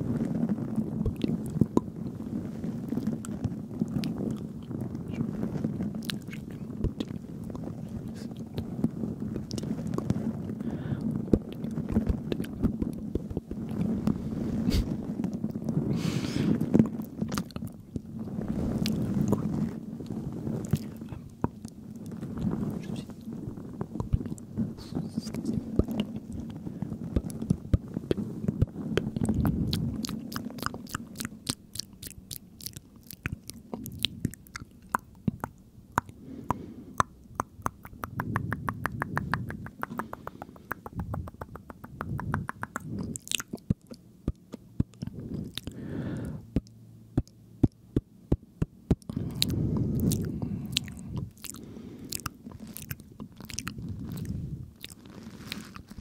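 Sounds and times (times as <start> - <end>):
muffled whispering and smacking: 0.0 - 56.0
wet mouth and tongue clicks: 6.0 - 8.7, 16.8 - 17.8, 27.2 - 45.8, 46.5 - 56.0.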